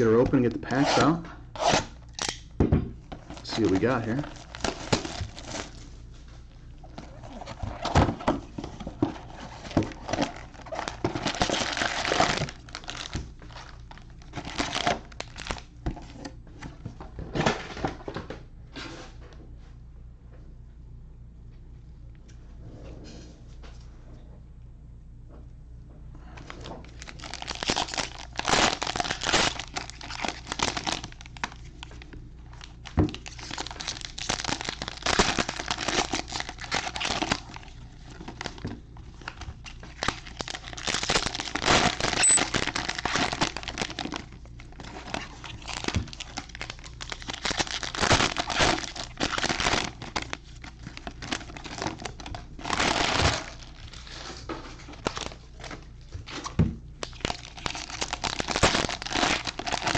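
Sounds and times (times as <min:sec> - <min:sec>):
plastic packaging tearing and crinkling: 0:03.2 - 0:05.9, 0:07.0 - 0:16.2, 0:26.4 - 0:59.9.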